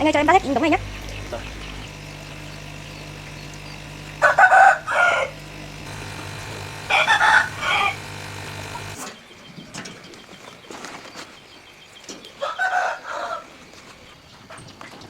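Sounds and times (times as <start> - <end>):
low steady hum: 0.0 - 9.0
rooster crowing: 4.2 - 5.4, 6.7 - 8.2, 12.4 - 13.5.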